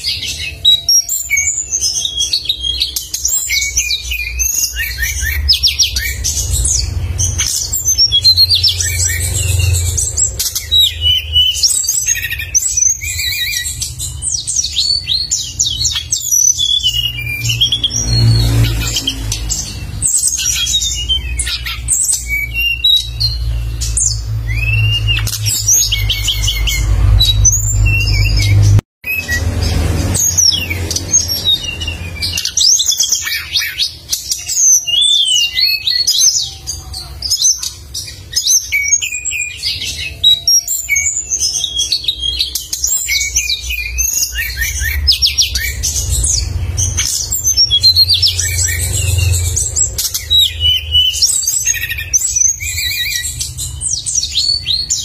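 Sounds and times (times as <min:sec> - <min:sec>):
songbird chirping and trilling: 0:00.0 - 0:55.0
low rumble: 0:05.0 - 0:11.3.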